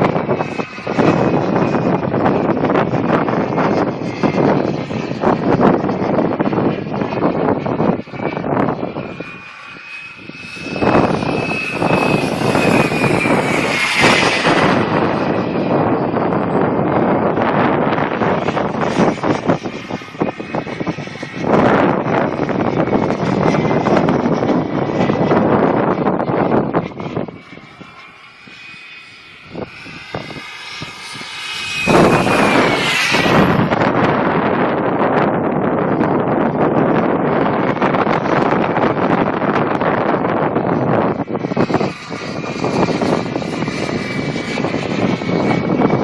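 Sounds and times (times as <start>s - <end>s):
model jet whine: 0.0s - 46.0s
wind buffeting microphone: 0.0s - 46.0s
jet rushing hiss: 9.4s - 16.2s, 27.2s - 34.5s.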